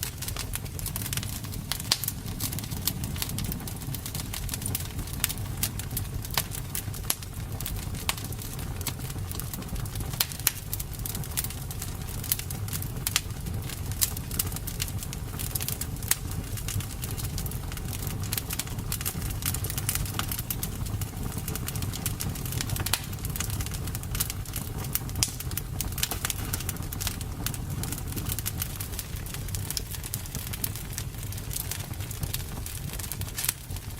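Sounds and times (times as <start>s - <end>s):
campfire crackling and popping: 0.0s - 33.9s.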